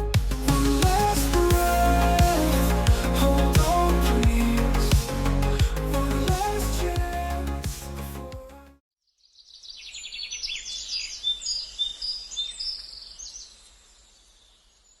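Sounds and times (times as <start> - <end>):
songbird chirping and trilling: 9.0 - 15.0.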